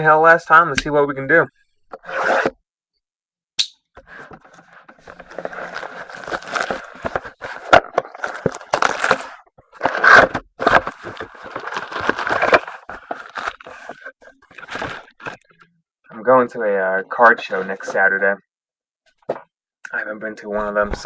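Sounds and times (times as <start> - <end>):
packaging crinkling and tearing: 5.1 - 15.5.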